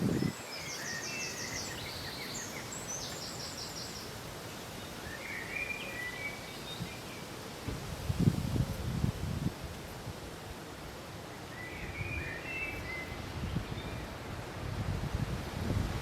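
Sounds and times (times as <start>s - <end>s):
wind buffeting microphone: 0.0s - 0.5s, 7.7s - 10.2s, 13.1s - 16.0s
small birds chirping: 0.0s - 7.4s
wind rustling crops: 0.0s - 16.0s.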